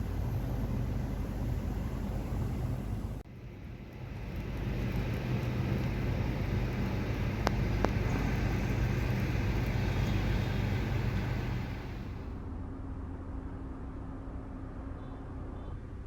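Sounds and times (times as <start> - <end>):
car engine running: 0.0 - 12.4
road and wind noise: 0.0 - 16.0.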